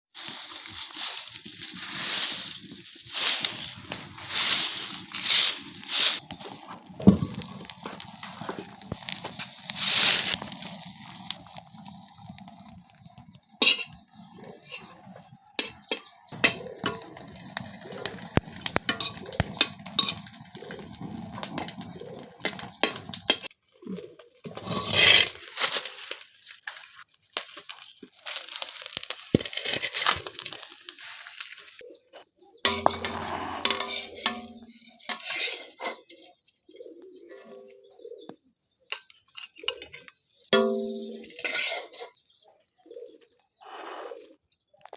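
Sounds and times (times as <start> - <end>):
hissing and rustling: 0.1 - 12.8
utensils clicking against pots: 13.6 - 23.5, 32.7 - 36.0.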